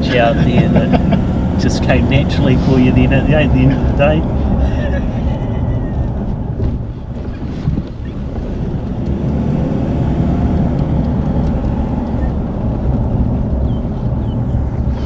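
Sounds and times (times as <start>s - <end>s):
vehicle rumble: 0.0s - 15.0s
wind buffeting microphone: 6.1s - 15.0s.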